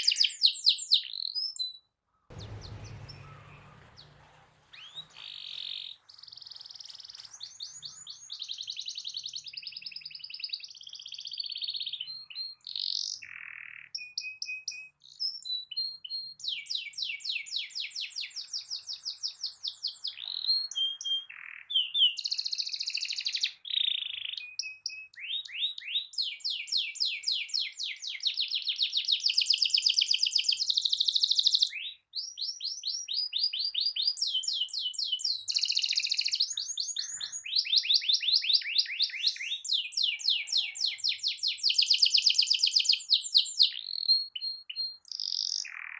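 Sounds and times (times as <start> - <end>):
canary singing trills: 33.5 - 45.9.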